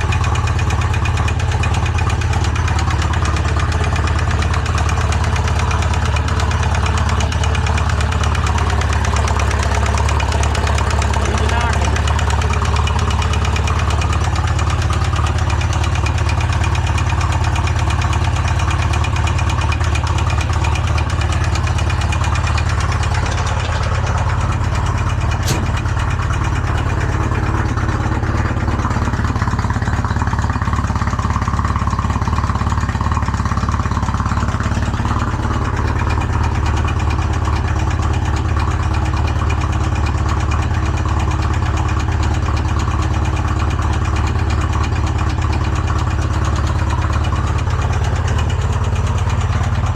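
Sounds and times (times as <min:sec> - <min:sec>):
engine idling roughly: 0:00.0 - 0:49.9
sharp click: 0:23.1 - 0:27.1.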